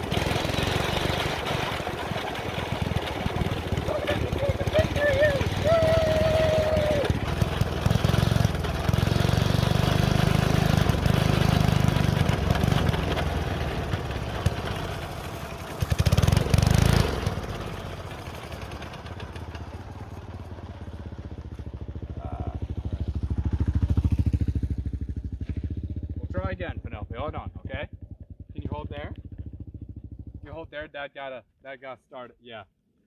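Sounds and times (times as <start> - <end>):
go-kart engine running and revving: 0.0 - 26.5, 28.0 - 30.4.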